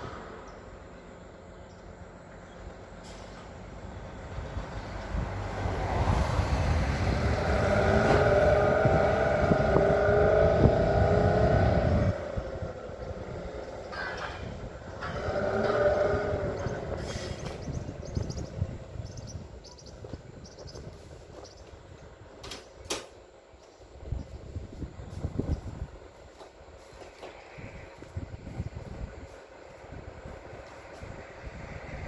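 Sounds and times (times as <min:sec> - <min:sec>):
diesel engine revving: 0:00.0 - 0:19.4.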